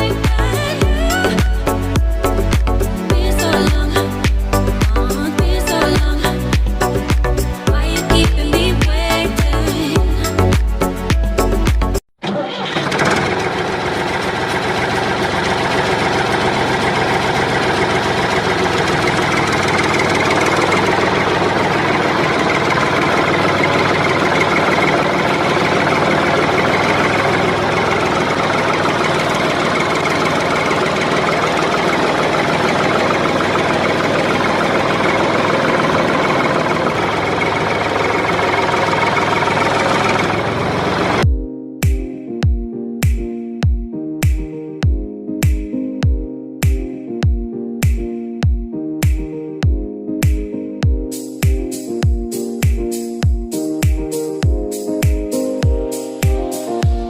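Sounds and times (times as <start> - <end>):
small electric motor running: 13.4 - 41.2.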